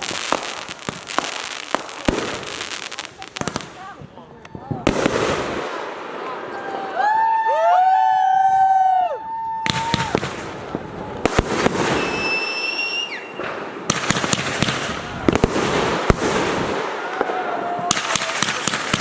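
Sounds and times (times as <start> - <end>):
fireworks crackling and popping: 0.0 - 7.4, 9.6 - 19.0
firework whistles: 11.6 - 13.7.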